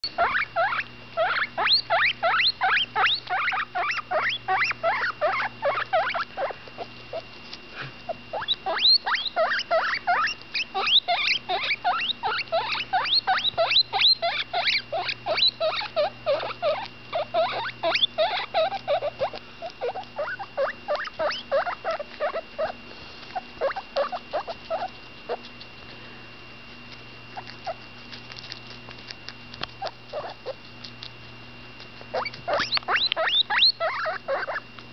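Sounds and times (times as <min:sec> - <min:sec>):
guinea pig squeaking: 0:00.0 - 0:07.2, 0:08.0 - 0:25.9, 0:27.3 - 0:31.3, 0:31.9 - 0:34.8.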